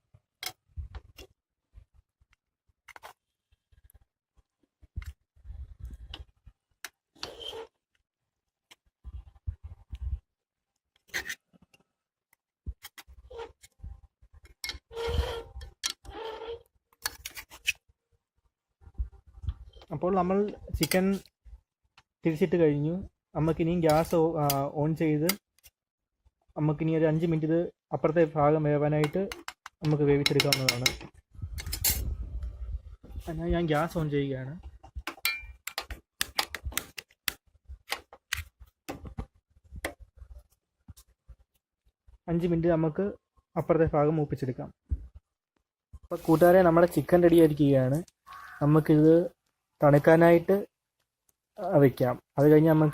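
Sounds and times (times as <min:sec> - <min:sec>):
utensil scraping a frying pan: 0:14.8 - 0:17.8.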